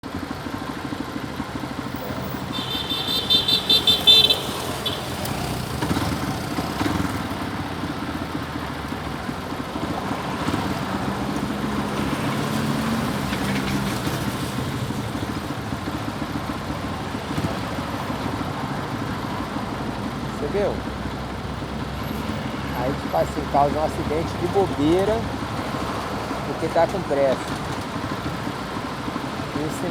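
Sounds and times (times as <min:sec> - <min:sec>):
motorcycle engine running: 0:00.0 - 0:29.9
road noise: 0:00.0 - 0:29.9
vehicle horn short beeps: 0:02.2 - 0:05.5.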